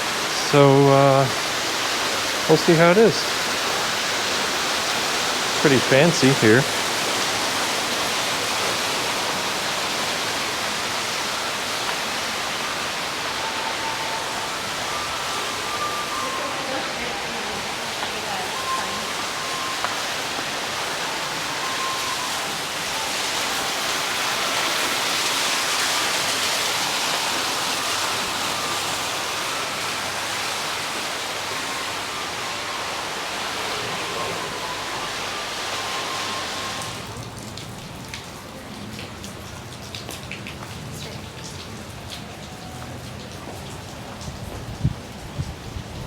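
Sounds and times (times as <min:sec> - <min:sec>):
heavy rain pouring: 0:00.0 - 0:46.0
raindrops tapping on surface: 0:17.9 - 0:22.2, 0:37.1 - 0:45.9.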